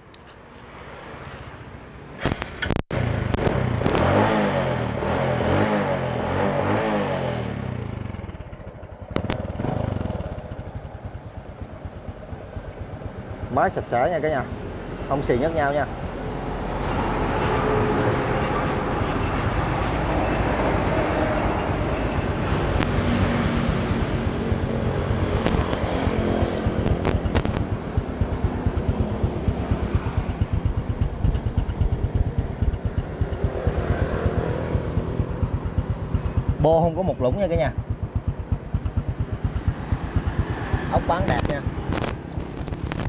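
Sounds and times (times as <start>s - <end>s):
motorcycle engine idling: 7.9s - 14.0s, 26.6s - 41.3s
sharp clicks: 24.7s - 27.7s, 41.4s - 43.0s.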